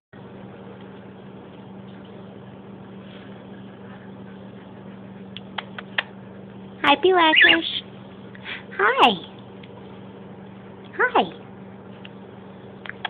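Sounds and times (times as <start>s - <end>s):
low electrical hum: 0.2s - 13.0s.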